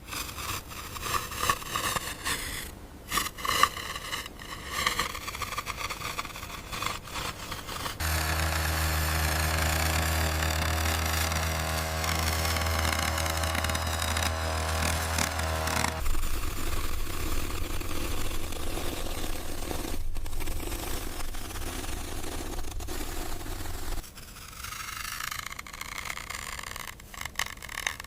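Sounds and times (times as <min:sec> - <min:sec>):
toy vehicles scraping sand: 0:00.0 - 0:24.4.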